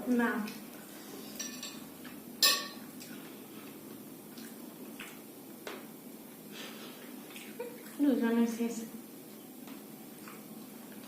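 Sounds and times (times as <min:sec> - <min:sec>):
cutlery clinking on a plate: 0:01.4 - 0:01.8, 0:02.4 - 0:02.8.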